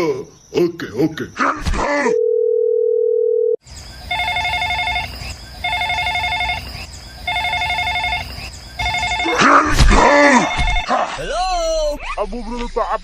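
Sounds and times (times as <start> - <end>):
telephone ringing: 2.2 - 11.2.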